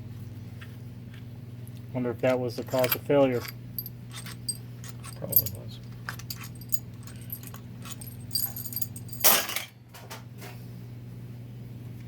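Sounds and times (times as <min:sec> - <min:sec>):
low electrical hum: 0:00.0 - 0:12.0
metal parts clinking: 0:02.6 - 0:09.7.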